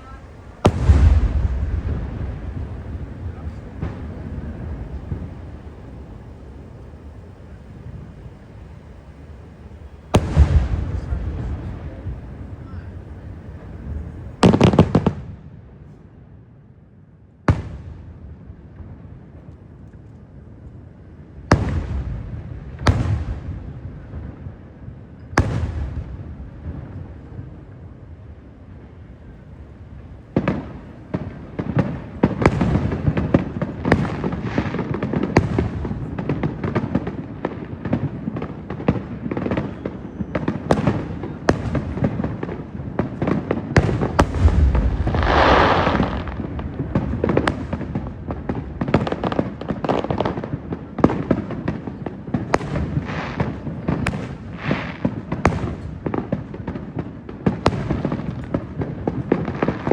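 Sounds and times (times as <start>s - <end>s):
fireworks hissing crackling burst: 0.0s - 15.2s, 28.9s - 59.9s
fireworks sharp bangs: 0.0s - 15.9s, 17.5s - 19.7s, 21.1s - 59.9s
fireworks low rumble: 0.0s - 59.9s.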